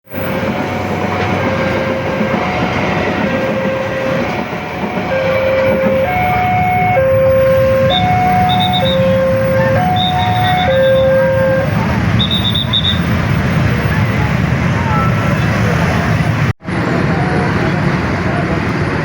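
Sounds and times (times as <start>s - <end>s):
train rumbling past: 0.0s - 19.0s
two-note alternating tone: 0.2s - 12.5s.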